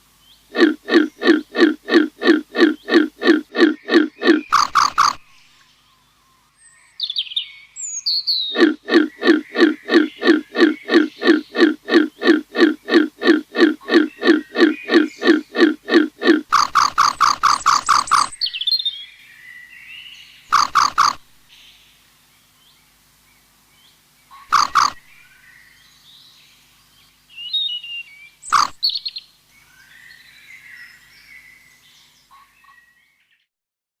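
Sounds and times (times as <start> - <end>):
faint bird chirps: 0.4 - 19.0, 20.5 - 21.2, 24.3 - 25.8, 27.4 - 31.7
harsh pulsed animal calls: 0.5 - 5.4, 8.5 - 18.4, 20.5 - 21.3, 24.4 - 25.2, 28.5 - 29.0.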